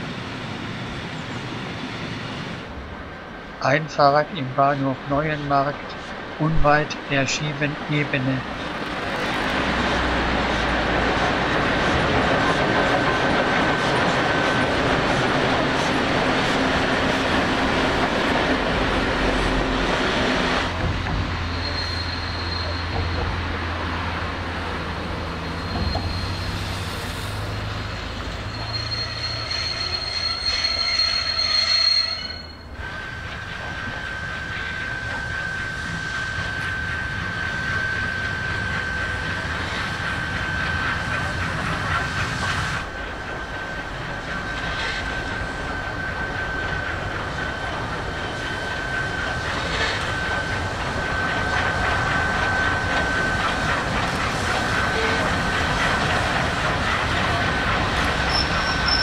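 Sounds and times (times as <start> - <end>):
train wheels rumbling and clattering: 5.0 - 31.7, 32.3 - 59.0
high-pitched flange squeal: 18.9 - 23.6, 24.5 - 59.0.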